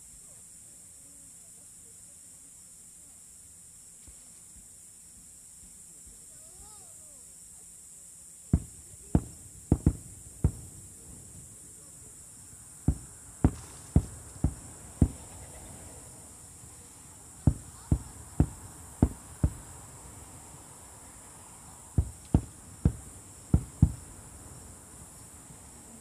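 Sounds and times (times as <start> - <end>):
distant firework shells bursting: 8.6 - 16.8, 17.4 - 20.3, 21.9 - 24.5.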